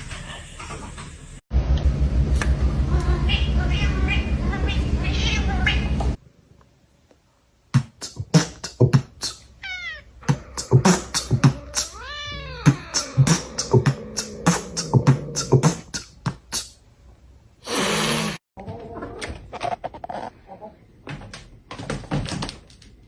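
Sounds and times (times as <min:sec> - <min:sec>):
cat meowing: 0:09.6 - 0:10.2, 0:11.6 - 0:13.3.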